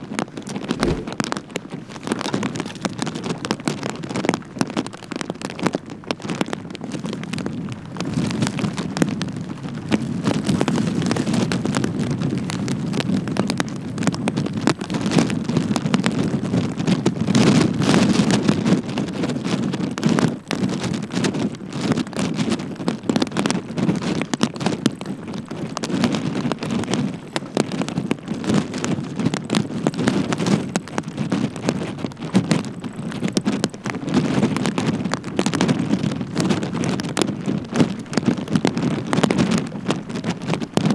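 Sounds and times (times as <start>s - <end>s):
wind buffeting microphone: 0.8s - 1.4s
rain tapping on microphone: 20.2s - 40.9s.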